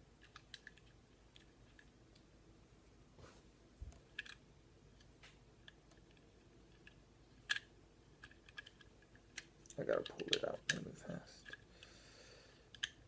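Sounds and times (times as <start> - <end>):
small trigger parts clicking: 12.7 - 13.0.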